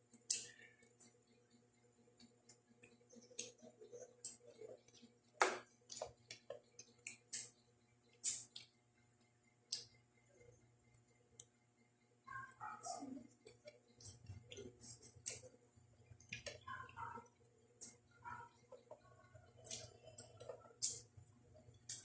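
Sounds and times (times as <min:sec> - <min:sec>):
chewing and lip-smacking: 0:02.2 - 0:05.2, 0:05.9 - 0:10.0, 0:12.4 - 0:17.2, 0:17.8 - 0:21.1.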